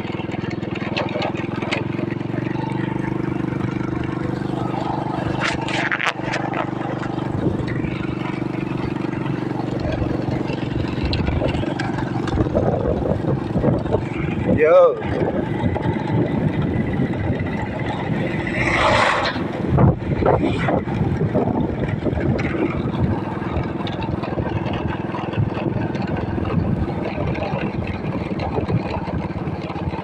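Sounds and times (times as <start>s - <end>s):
vehicle engine running: 0.0s - 30.0s
wind on microphone: 2.2s - 30.0s
brief rushes of noise: 18.6s - 19.5s.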